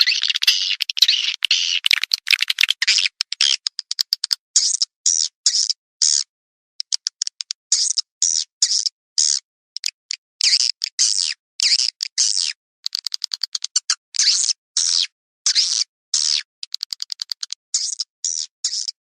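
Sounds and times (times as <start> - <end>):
swiftlets twittering: 0.0 - 2.9
strings of clicks: 0.0 - 4.4.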